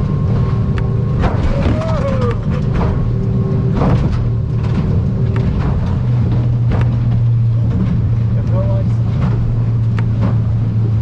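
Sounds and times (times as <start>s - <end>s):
boat outboard motor running: 0.0s - 11.0s
hull slapping through chop: 0.3s - 8.4s.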